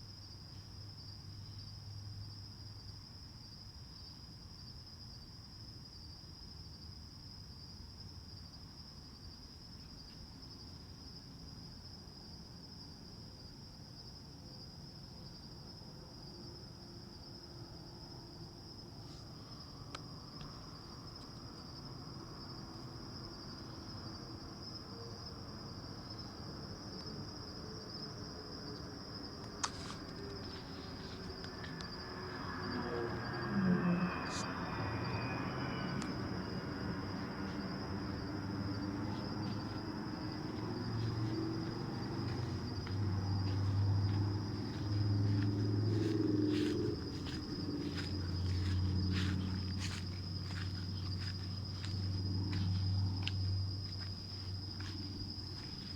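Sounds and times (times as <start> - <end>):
crickets chirping: 0.0 - 55.9
airplane passing overhead: 26.3 - 55.9
low rumble: 30.0 - 55.6.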